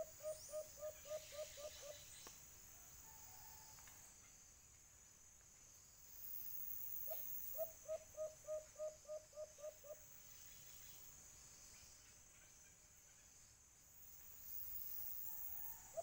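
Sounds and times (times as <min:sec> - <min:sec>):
dove hooting: 0:00.0 - 0:02.0, 0:07.1 - 0:10.0
high insect drone: 0:00.0 - 0:16.0.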